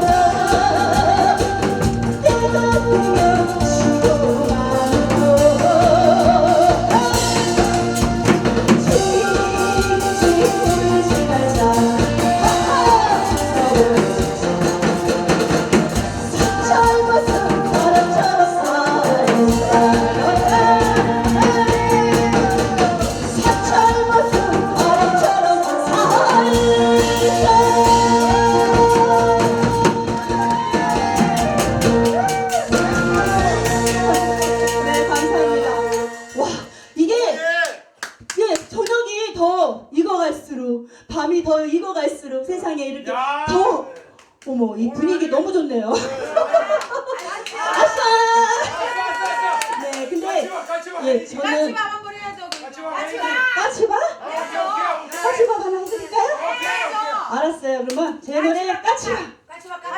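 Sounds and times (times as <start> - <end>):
held keyboard chords: 0.0 - 36.9
drum beat: 0.0 - 37.2
person singing with vibrato: 0.0 - 37.6.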